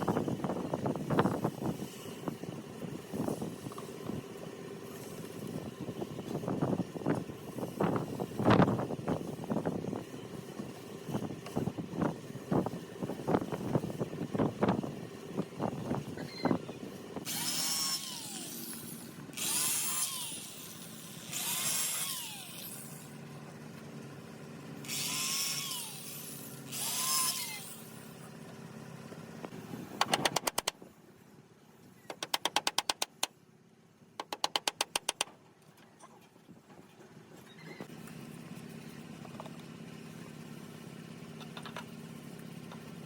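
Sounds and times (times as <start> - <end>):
power tool cutting wood: 17.2 - 23.1, 24.8 - 28.3.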